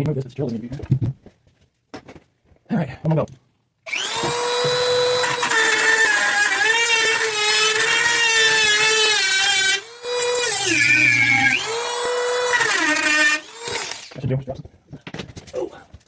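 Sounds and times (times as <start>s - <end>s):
electric drill whining: 3.9s - 14.2s.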